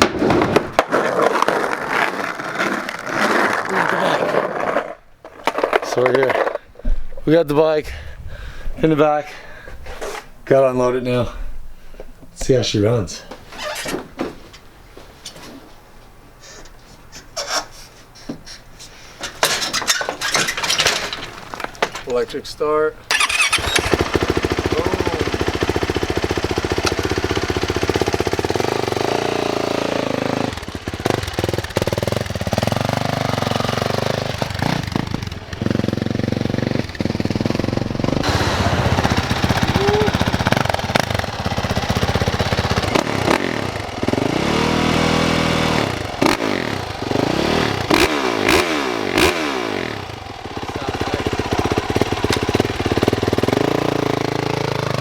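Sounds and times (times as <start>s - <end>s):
dirt bike engine revving: 23.1s - 55.0s.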